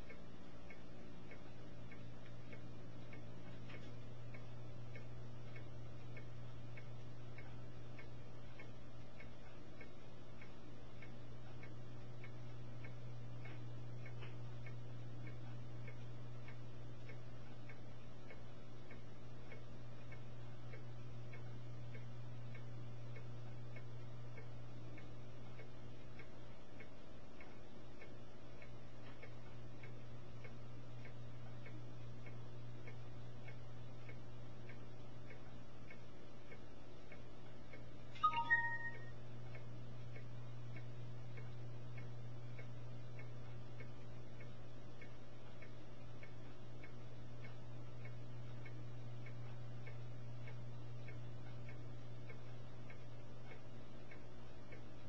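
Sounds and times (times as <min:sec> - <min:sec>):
faint regular ticking: 0:00.0 - 0:55.0
steady low hum: 0:00.0 - 0:55.0.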